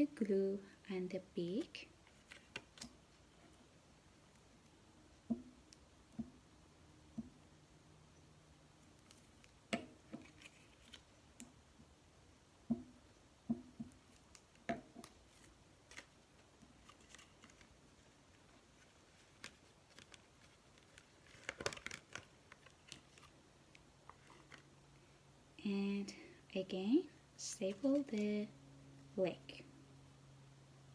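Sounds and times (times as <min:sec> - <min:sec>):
crinkly clicks: 0:19.2 - 0:24.6.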